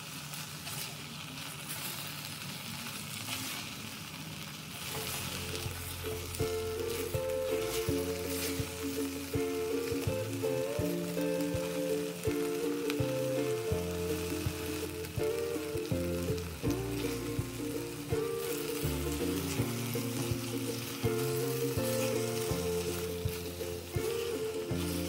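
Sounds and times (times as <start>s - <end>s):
chicken and onion sizzling: 0.0s - 25.0s
background music with bass: 5.0s - 25.0s.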